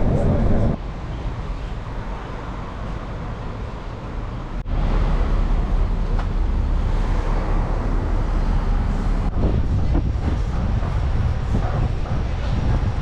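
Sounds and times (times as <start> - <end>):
low rumble: 0.0 - 0.8
vehicle traffic: 0.0 - 13.0.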